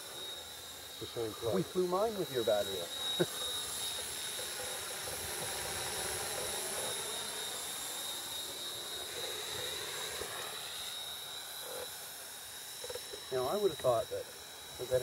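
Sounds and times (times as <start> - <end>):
model helicopter rotor whine: 0.0 - 15.0.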